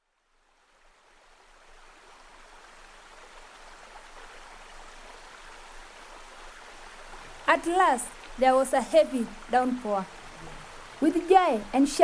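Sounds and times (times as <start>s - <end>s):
heavy rain hissing: 7.3s - 12.0s.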